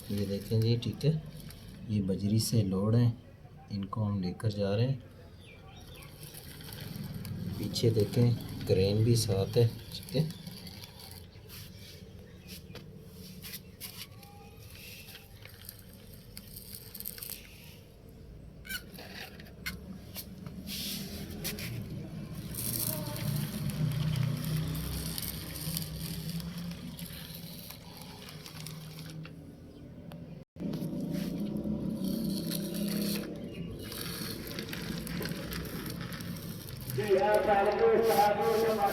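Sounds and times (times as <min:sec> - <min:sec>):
toy trolleys rolling on ground: 0:00.0 - 0:02.5, 0:05.7 - 0:12.4, 0:13.4 - 0:17.9, 0:18.7 - 0:29.4, 0:30.6 - 0:38.9
rattles and scrapes: 0:05.9 - 0:12.1, 0:18.7 - 0:29.4, 0:30.6 - 0:38.9.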